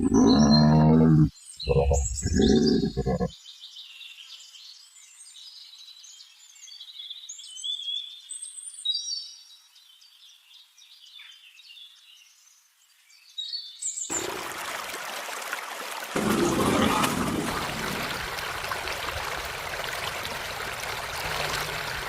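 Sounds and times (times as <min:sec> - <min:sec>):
songbirds chirping and warbling: 0:00.0 - 0:14.3
running water rushing: 0:14.1 - 0:22.0.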